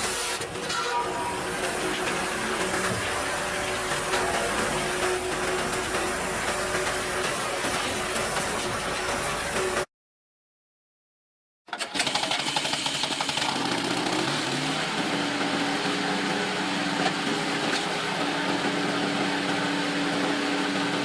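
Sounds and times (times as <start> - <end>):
log splitter engine running: 0.0 - 9.8, 11.8 - 21.0.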